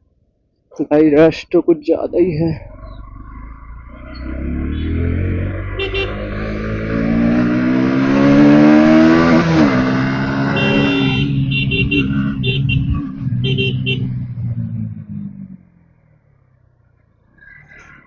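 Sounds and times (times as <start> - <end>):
motorcycle engine accelerating: 2.0 - 16.9
traffic horn beeps: 4.6 - 6.7, 10.4 - 14.2.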